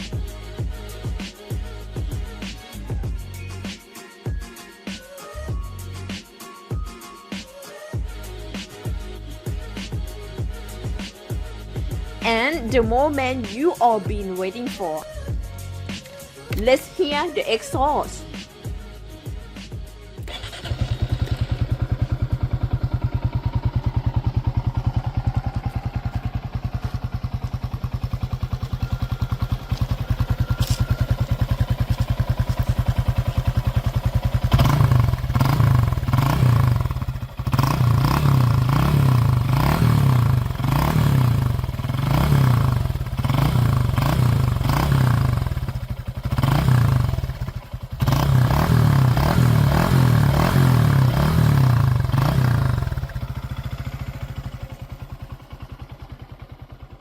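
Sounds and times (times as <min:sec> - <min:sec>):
motorcycle engine idling: 0:20.2 - 0:57.0
motorcycle engine revving: 0:20.2 - 0:57.0.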